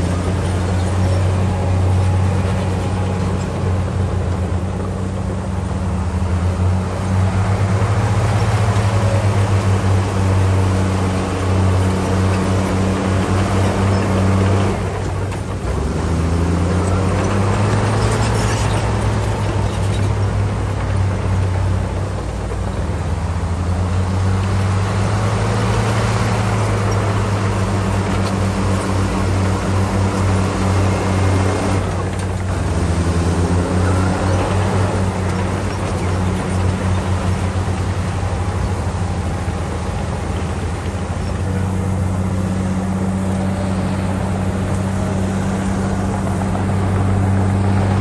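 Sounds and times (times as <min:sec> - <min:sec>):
bulldozer diesel engine: 0:00.0 - 0:48.0.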